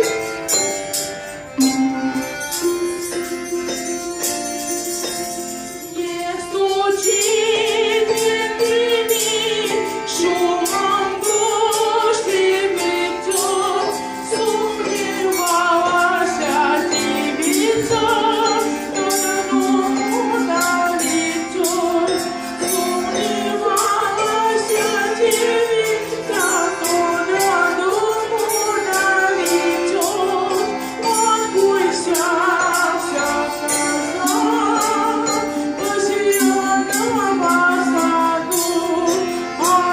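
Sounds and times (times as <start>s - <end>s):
instrumental accompaniment: 0.0s - 39.9s
rhythmic percussion beat: 0.0s - 39.9s
vocal ensemble singing folk song: 5.1s - 39.9s.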